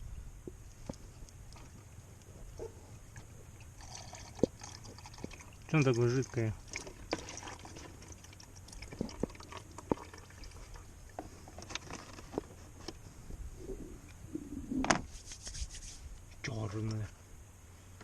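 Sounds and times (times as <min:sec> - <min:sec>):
small drips and clicks: 0:03.1 - 0:11.8
oil draining into a basin: 0:03.6 - 0:10.8.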